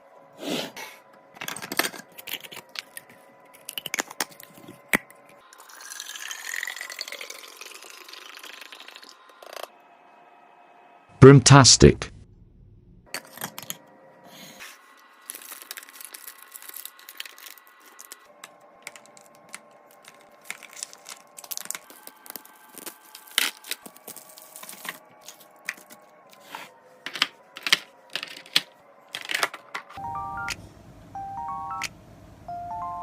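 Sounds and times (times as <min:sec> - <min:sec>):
plastic packaging crinkling and tearing: 0:15.1 - 0:18.3, 0:18.9 - 0:26.0.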